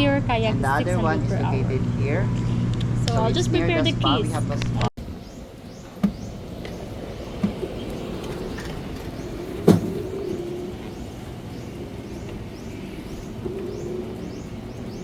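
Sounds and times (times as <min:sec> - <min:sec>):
birds chirping: 0:00.0 - 0:03.7, 0:05.0 - 0:15.0
golf cart humming: 0:05.0 - 0:15.0
sharp thump: 0:06.0 - 0:06.3, 0:09.6 - 0:10.0.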